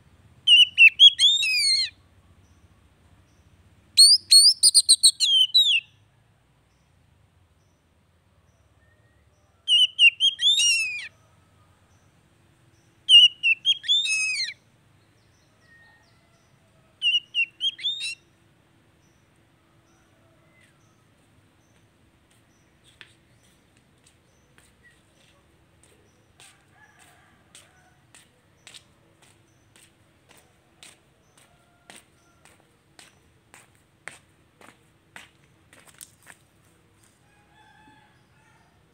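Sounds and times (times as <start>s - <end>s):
bird singing warbling whistles: 0.5s - 1.9s, 4.0s - 5.9s, 9.7s - 11.1s, 13.1s - 14.6s, 17.1s - 18.2s.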